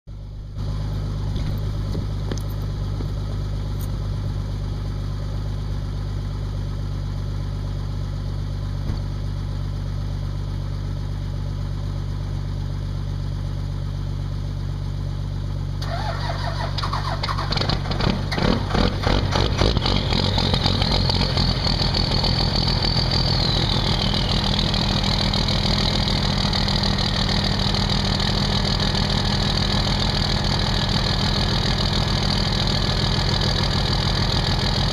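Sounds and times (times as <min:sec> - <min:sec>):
steady low hum: 0:00.1 - 0:15.8
diesel engine starting and idling: 0:00.1 - 0:34.9
high whine: 0:17.7 - 0:34.9.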